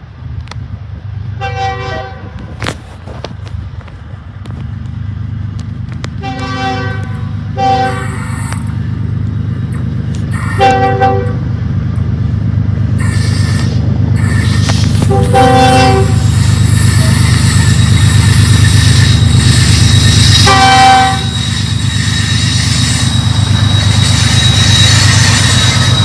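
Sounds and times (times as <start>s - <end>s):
locomotive engine rumble: 0.0s - 26.0s
locomotive air horn: 1.4s - 2.4s, 6.2s - 8.7s, 10.3s - 11.4s, 13.0s - 26.0s.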